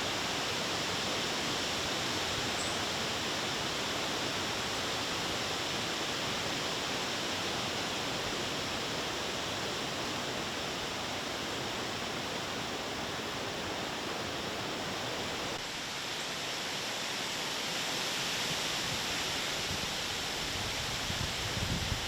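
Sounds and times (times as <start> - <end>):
wind buffeting microphone: 20.5 - 22.0.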